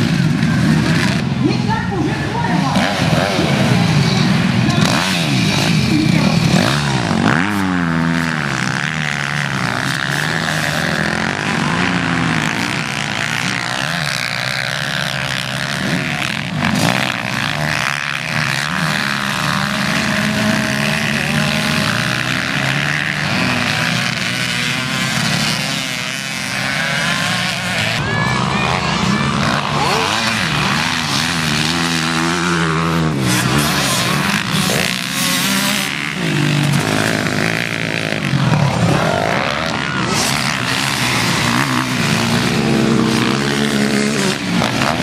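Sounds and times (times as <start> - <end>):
motocross engines revving: 0.0 - 45.0.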